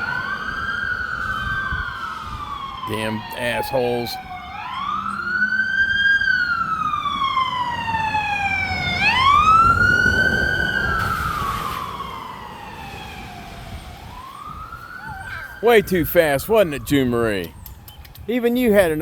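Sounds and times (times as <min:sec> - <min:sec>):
emergency siren wailing: 0:00.0 - 0:18.6
road noise: 0:00.0 - 0:19.0.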